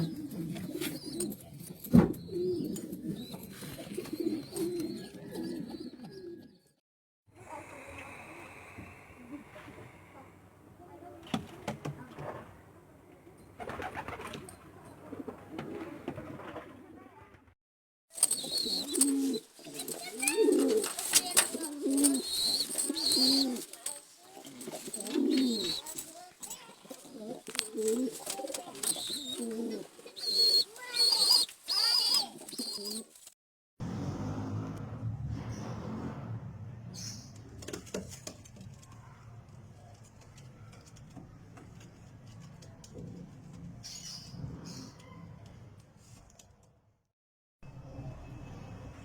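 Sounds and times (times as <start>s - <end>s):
pigeons cooing: 0.0s - 6.6s, 18.2s - 33.3s.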